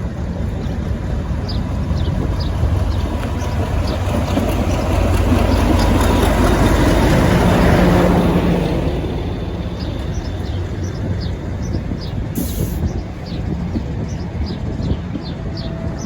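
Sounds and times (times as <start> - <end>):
diesel train rumbling: 0.0 - 16.0
wheels knocking: 0.4 - 15.7
birds chirping: 0.4 - 16.0
brief hiss: 12.4 - 12.8.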